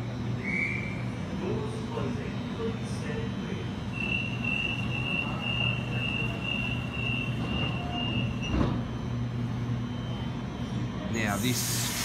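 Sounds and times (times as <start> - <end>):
electric train humming: 0.0 - 12.0
door warning beeps: 3.9 - 10.8.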